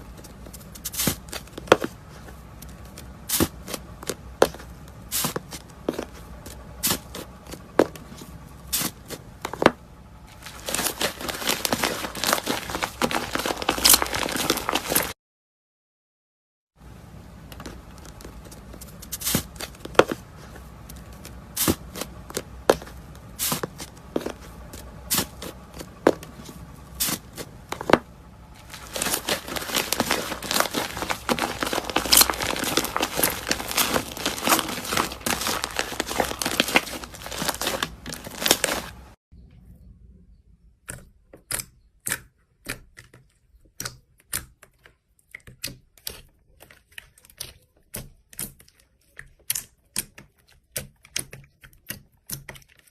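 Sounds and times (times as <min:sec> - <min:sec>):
slime popping and crackling: 0:10.4 - 0:15.1, 0:28.6 - 0:39.1.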